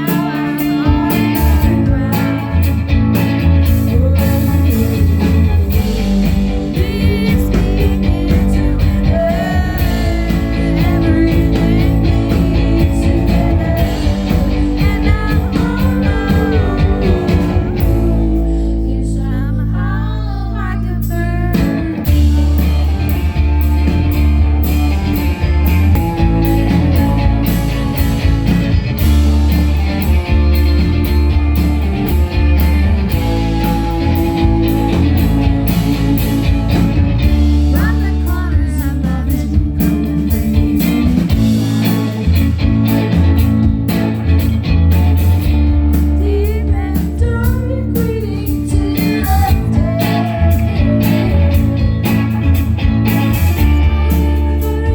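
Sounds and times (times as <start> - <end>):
steady drum beat: 0.0 - 18.5, 21.6 - 54.9
woman singing: 0.0 - 24.2, 32.1 - 42.6, 45.9 - 54.9
electric guitar: 0.0 - 54.9
heavy bass: 0.0 - 54.9.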